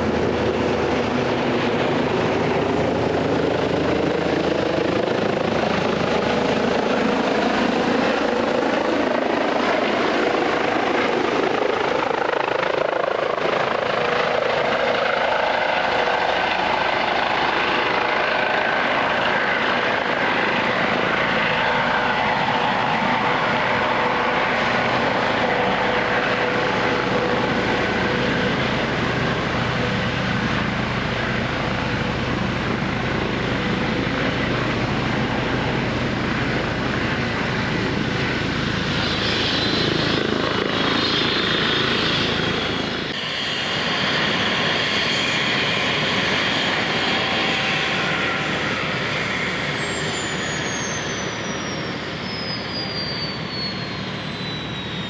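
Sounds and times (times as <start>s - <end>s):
helicopter rotor noise: 0.0s - 55.0s
helicopter turbine whine: 0.0s - 55.0s.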